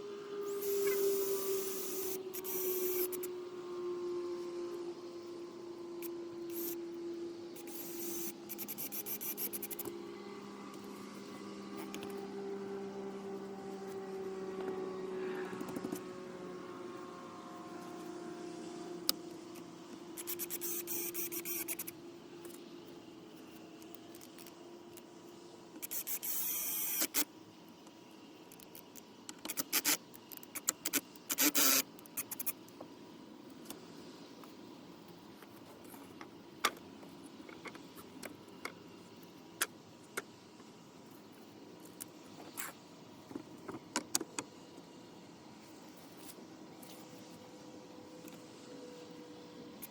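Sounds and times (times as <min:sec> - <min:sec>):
vehicle engine hum: 0:00.0 - 0:22.0.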